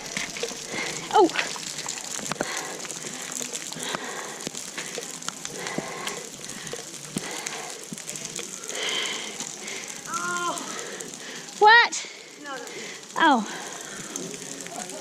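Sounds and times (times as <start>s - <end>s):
footsteps on rocky trail: 0.0s - 4.9s
steady hiss: 0.0s - 15.0s.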